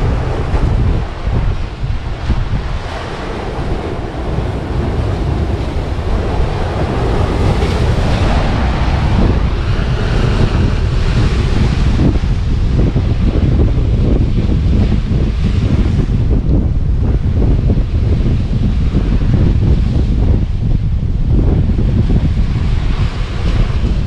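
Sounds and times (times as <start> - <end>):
steady rushing noise: 0.0 - 24.0
wind buffeting microphone: 0.0 - 24.0.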